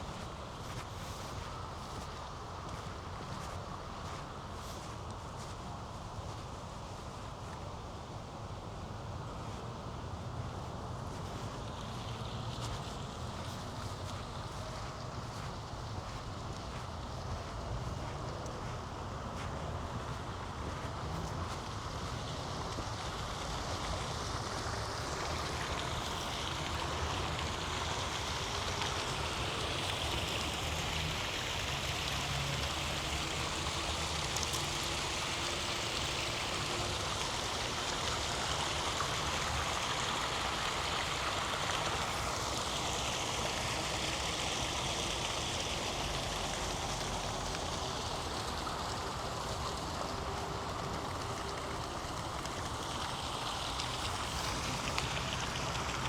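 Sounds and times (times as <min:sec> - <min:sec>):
faint traffic hum: 0:00.0 - 0:56.0
running water rushing: 0:00.0 - 0:56.0.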